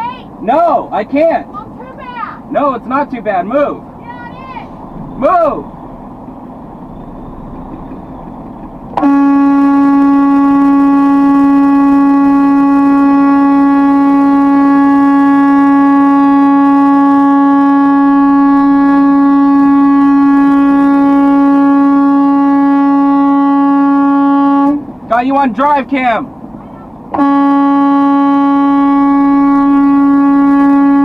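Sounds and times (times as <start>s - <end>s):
low road noise: 0.0s - 31.0s
car horn blast: 8.9s - 24.9s, 26.6s - 31.0s.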